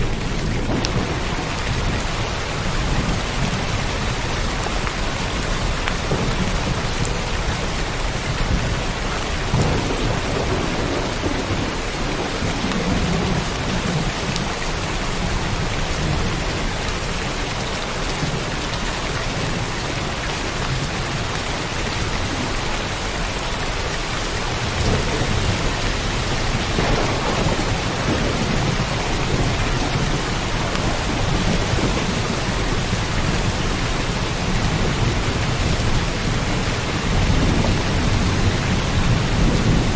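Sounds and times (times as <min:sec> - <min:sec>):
thunder rumbling: 0:00.0 - 0:18.6, 0:19.3 - 0:39.9
heavy rain falling: 0:00.0 - 0:39.9.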